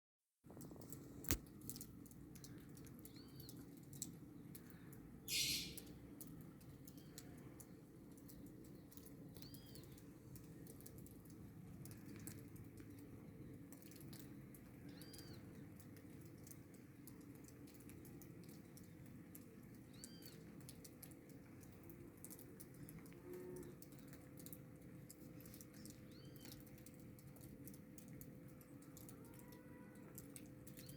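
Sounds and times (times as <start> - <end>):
bird chirping: 2.4 - 3.8, 5.2 - 5.9, 8.7 - 10.0, 14.8 - 15.6, 19.9 - 20.4, 25.5 - 26.8.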